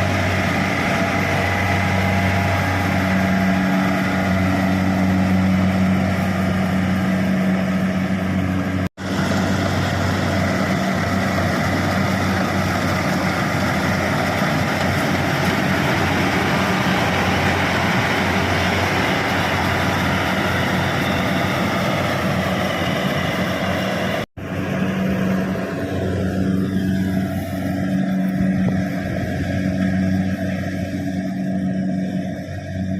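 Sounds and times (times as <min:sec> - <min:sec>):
combine harvester engine hum: 0:00.0 - 0:32.9.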